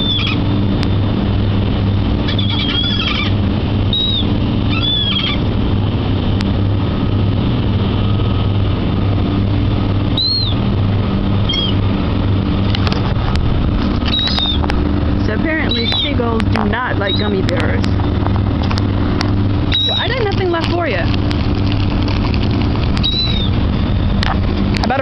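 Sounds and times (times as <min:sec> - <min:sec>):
seagulls crying: 0:00.0 - 0:00.7, 0:02.1 - 0:05.6, 0:10.0 - 0:12.0, 0:14.0 - 0:14.7, 0:15.5 - 0:16.2, 0:16.9 - 0:17.4, 0:19.7 - 0:20.3, 0:22.9 - 0:24.2
low engine hum: 0:00.0 - 0:25.0.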